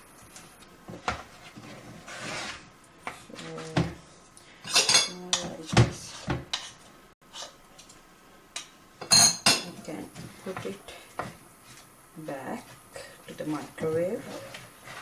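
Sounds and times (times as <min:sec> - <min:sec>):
spoon stirring batter in bowl: 0:00.2 - 0:08.0.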